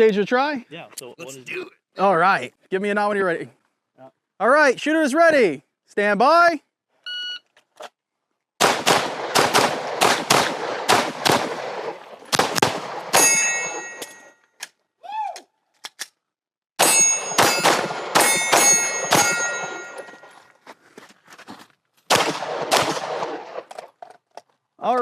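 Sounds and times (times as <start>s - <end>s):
steel targets ringing: 13.1s - 14.4s, 16.8s - 20.4s
handgun shots: 16.8s - 20.0s, 22.1s - 23.6s.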